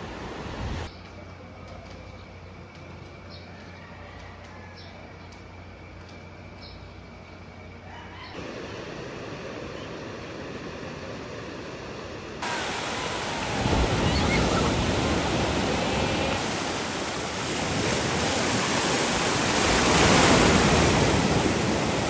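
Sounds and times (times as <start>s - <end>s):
ocean waves breaking: 0.0s - 0.9s, 8.4s - 22.0s.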